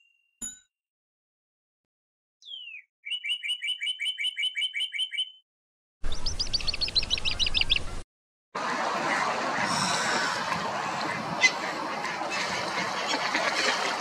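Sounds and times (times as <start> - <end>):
bird trills: 2.4 - 5.4, 6.1 - 8.0
ducks paddling in water: 8.6 - 14.0.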